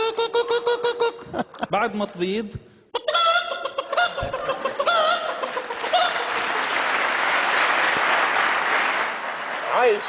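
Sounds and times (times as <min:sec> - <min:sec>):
man imitating hen cackle: 0:03.0 - 0:05.3
audience applauding: 0:04.5 - 0:10.0.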